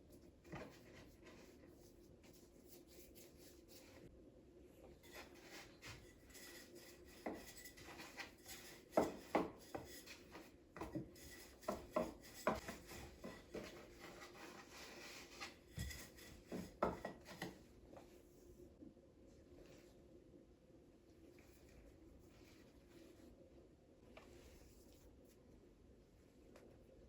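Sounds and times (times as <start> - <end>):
light knocks and scraping: 5.0 - 18.1.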